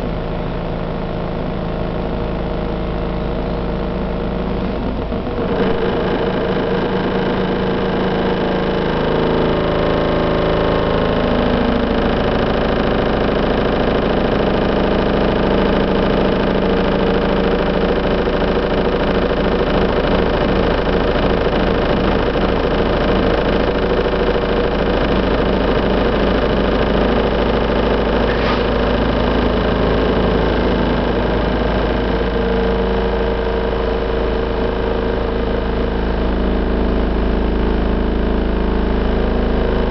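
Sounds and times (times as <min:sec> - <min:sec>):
construction machine diesel engine: 0:04.5 - 0:39.9.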